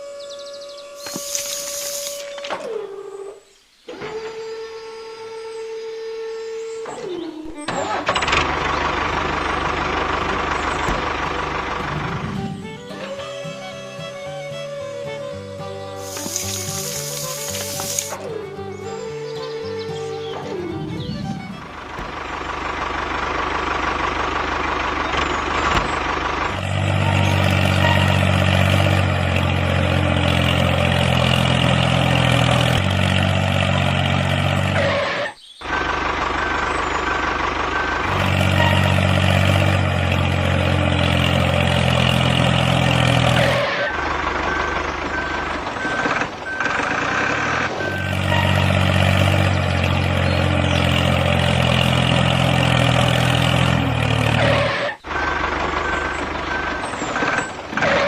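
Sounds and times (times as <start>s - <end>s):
vehicle engine running: 0.0s - 58.0s
high reversing alarm beeps: 44.4s - 48.7s.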